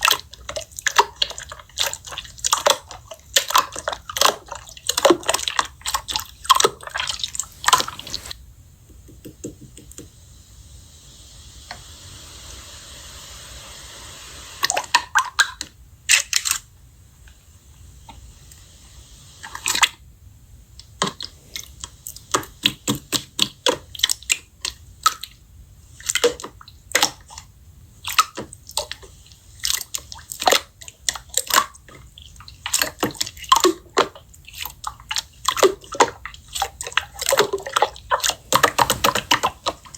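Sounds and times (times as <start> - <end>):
soft hiss: 6.6 - 14.8, 37.4 - 39.9.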